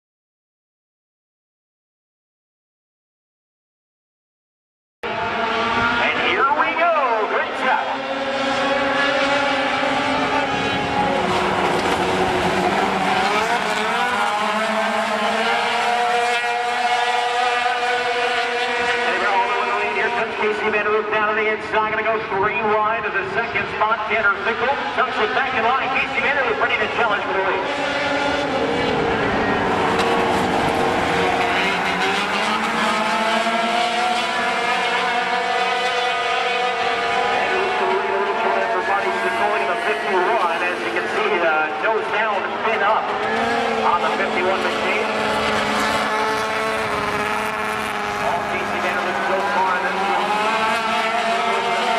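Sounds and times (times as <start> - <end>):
racing truck engines: 5.0 - 51.9.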